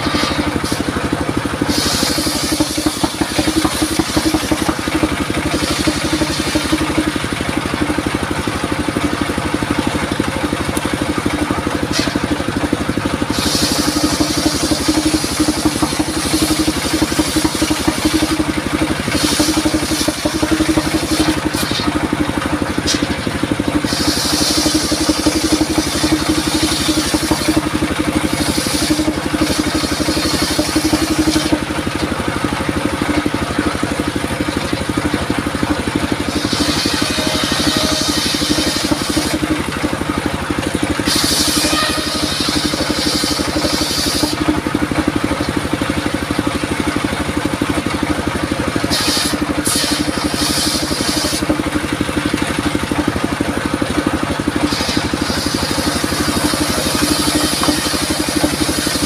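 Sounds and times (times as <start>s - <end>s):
saw blade hissing through wood: 0.0s - 7.1s, 11.7s - 22.1s, 22.7s - 31.6s, 36.1s - 39.7s, 40.9s - 44.5s, 48.8s - 51.5s, 54.5s - 59.0s
circular sawmill engine running: 0.0s - 59.0s.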